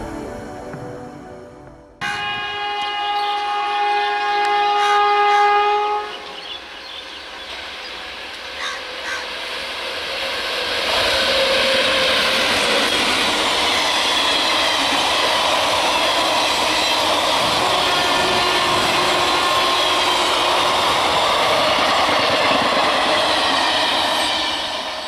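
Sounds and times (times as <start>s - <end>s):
locomotive horn blast: 2.0s - 7.1s, 17.4s - 23.4s
train coaches rumbling on rails: 2.0s - 25.0s.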